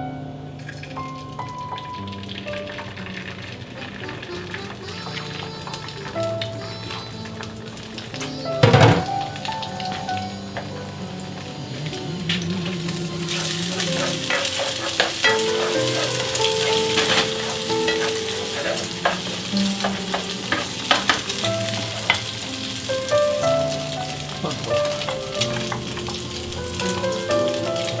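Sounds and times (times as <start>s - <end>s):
background music: 0.0s - 28.0s
food sizzling in a pan: 0.1s - 28.0s
spatula scraping a pan: 12.7s - 27.9s.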